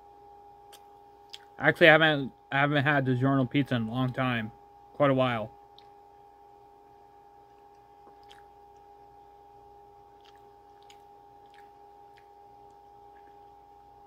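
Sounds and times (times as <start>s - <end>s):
steady hum: 0.0s - 14.0s
wet mouth clicks: 0.7s - 1.5s, 7.5s - 8.9s, 10.1s - 13.5s
faint chewing: 7.4s - 9.2s, 10.0s - 14.0s.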